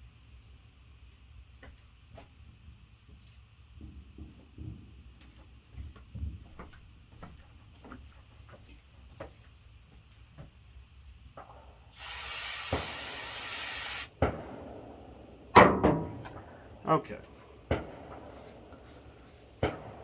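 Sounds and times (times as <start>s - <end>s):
aerosol can spraying: 12.0s - 14.1s.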